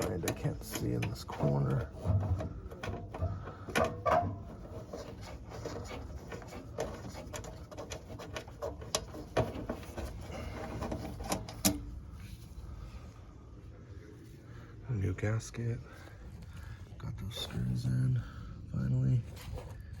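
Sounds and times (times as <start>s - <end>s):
metal clicks taps and scrapes: 0.0s - 11.9s.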